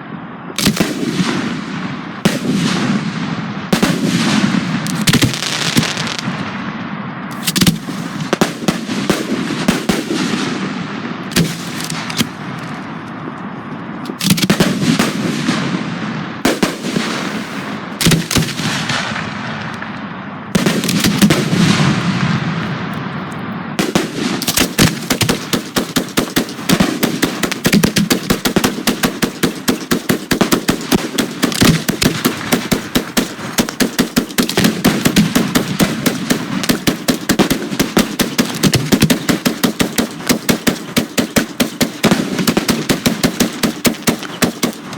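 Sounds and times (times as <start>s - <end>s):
firework shell bursts crackling: 3.8s - 6.5s, 11.3s - 12.7s, 16.5s - 19.8s, 20.6s - 23.2s, 23.8s - 44.9s
rapid string of sharp reports: 23.8s - 44.9s.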